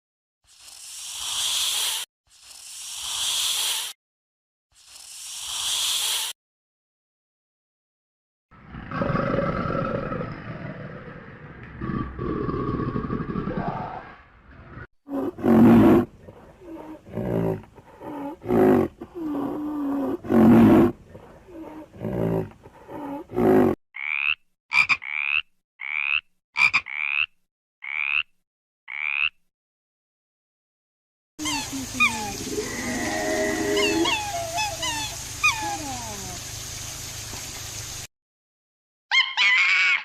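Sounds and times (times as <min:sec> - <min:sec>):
lion roaring and grunting: 0:08.6 - 0:23.8, 0:32.3 - 0:34.3
short high animal calls: 0:31.4 - 0:36.0.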